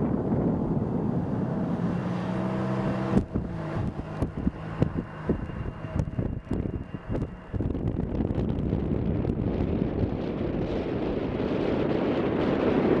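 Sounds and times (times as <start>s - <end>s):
low engine hum: 0.0s - 13.0s
wind buffeting microphone: 0.0s - 13.0s.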